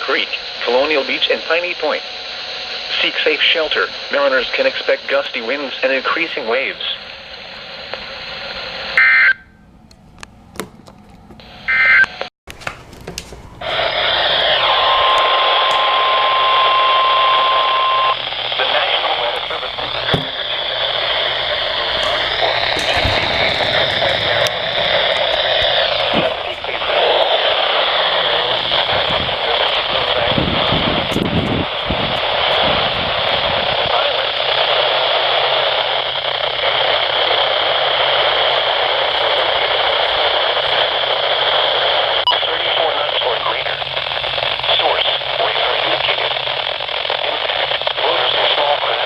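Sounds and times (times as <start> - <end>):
radio hiss: 0.0 - 9.0, 13.6 - 49.0
steady high tone: 13.5 - 30.8
clicks: 19.0 - 27.4.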